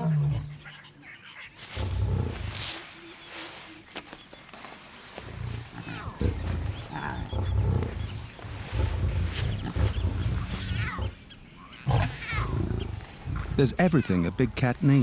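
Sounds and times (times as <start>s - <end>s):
lion growling: 5.3s - 14.5s.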